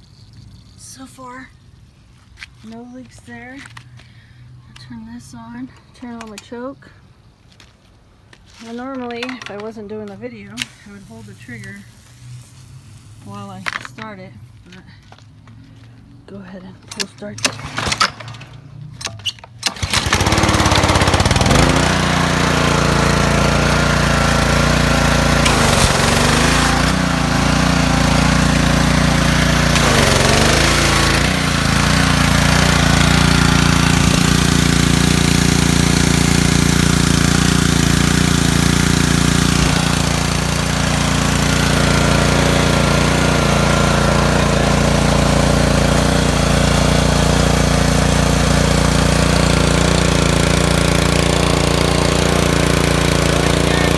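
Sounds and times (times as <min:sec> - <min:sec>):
pressure washer engine running: 0:10.6 - 0:13.8, 0:19.6 - 0:53.9.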